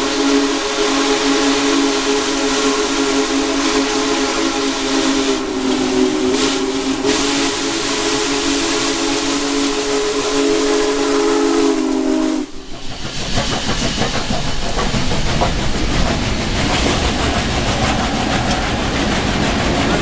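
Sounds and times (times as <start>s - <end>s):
steam locomotive chime whistle: 0.0s - 12.7s, 17.6s - 20.0s
steam hiss: 0.0s - 20.0s
train rumble and clatter: 0.0s - 20.0s.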